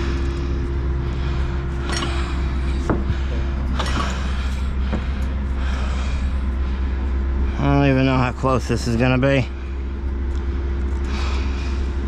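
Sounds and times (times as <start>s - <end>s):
engine idling: 0.0s - 12.0s
clinks and knocks of work: 1.8s - 5.4s.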